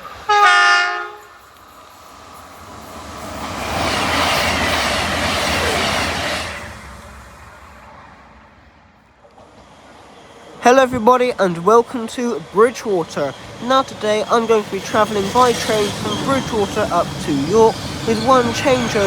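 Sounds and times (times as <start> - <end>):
train horn: 0.0 - 1.4
train passing: 0.0 - 19.0.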